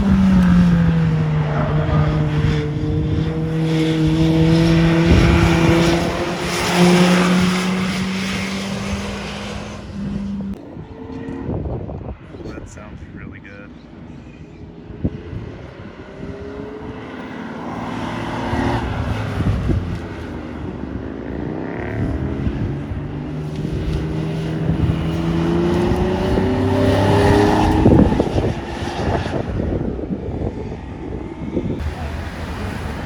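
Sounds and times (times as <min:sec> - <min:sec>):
cars driving past: 0:00.0 - 0:33.0.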